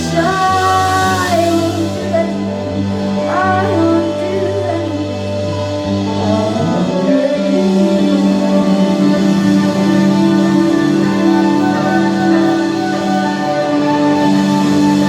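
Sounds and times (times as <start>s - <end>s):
live band playing held notes: 0.0s - 15.0s.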